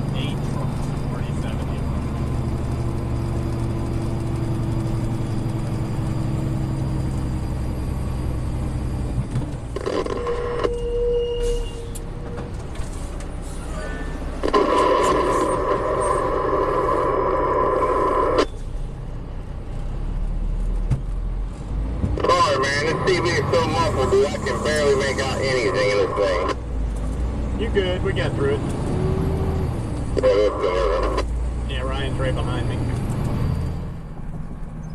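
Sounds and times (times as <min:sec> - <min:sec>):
vehicle low hum: 0:00.0 - 0:34.9
loud steady sound: 0:13.8 - 0:18.5.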